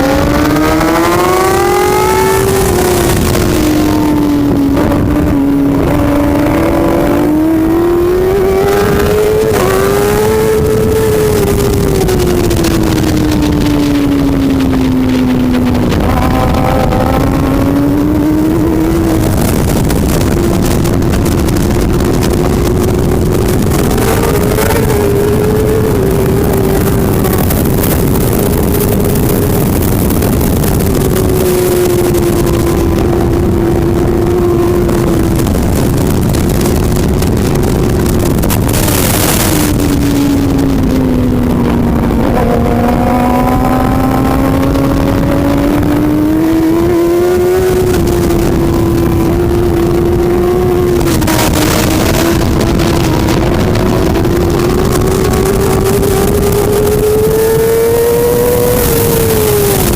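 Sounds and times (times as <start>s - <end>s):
motorbike engine revving hard: 0.0s - 59.9s
wind rush and track noise: 0.0s - 59.9s.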